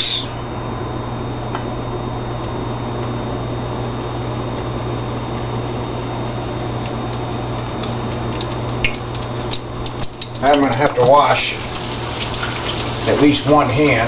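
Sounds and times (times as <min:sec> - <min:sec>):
low hum: 0:00.0 - 0:13.1
shrimp frying in hot oil: 0:06.3 - 0:14.0.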